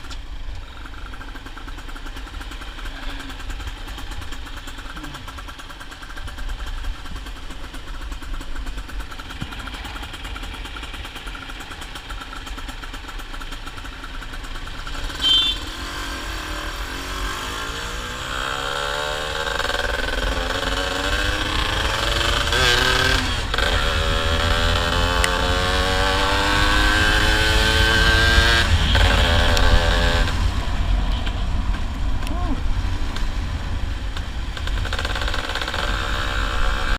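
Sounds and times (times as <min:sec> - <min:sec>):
two-stroke motorcycle engine revving: 0:00.0 - 0:36.9
steady low rumble: 0:28.6 - 0:35.0.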